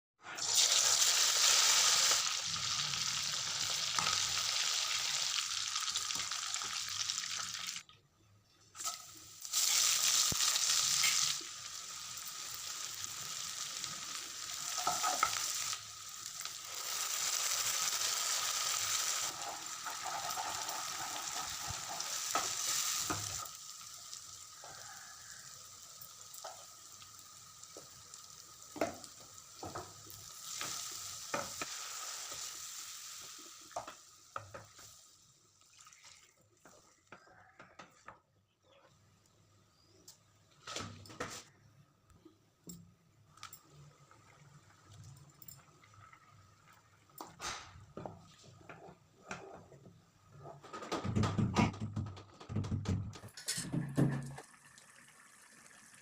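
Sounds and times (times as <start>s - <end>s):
food sizzling in hot oil: 0.2s - 7.8s, 8.8s - 36.8s, 54.0s - 56.0s.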